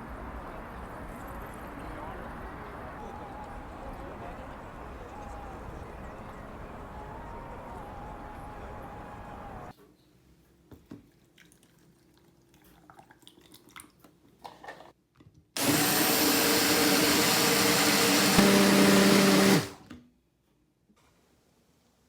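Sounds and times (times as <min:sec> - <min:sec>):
electric blender running: 0:06.6 - 0:09.7, 0:15.6 - 0:19.8.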